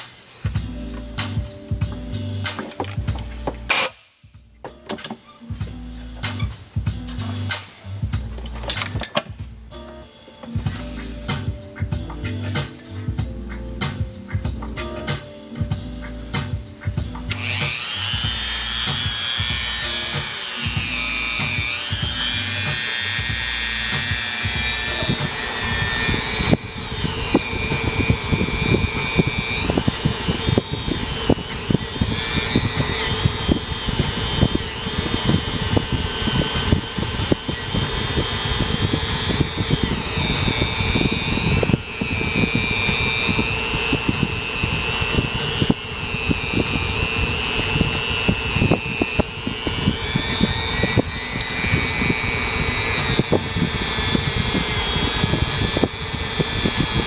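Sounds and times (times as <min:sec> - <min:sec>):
rotary tool whining: 0:15.0 - 0:57.0
wire wheel scratching: 0:17.1 - 0:57.0.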